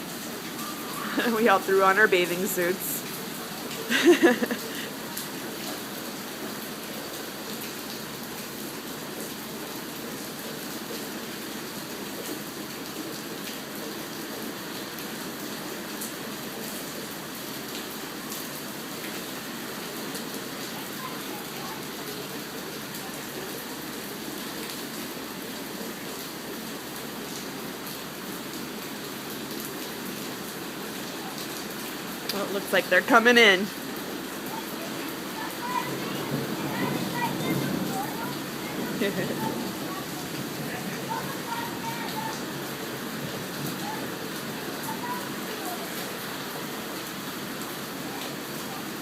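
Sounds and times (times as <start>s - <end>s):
steady rain: 0.0s - 49.0s
sharp raindrop hits: 35.4s - 45.3s.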